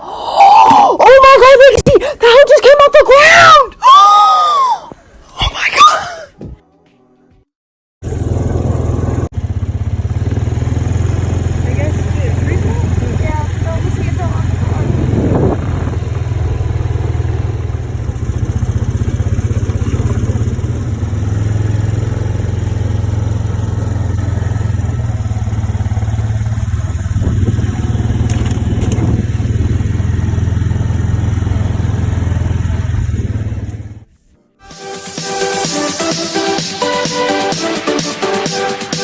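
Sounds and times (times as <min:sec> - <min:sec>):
strong wind buffeting microphone: 0:12.7 - 0:17.6, 0:27.0 - 0:28.0.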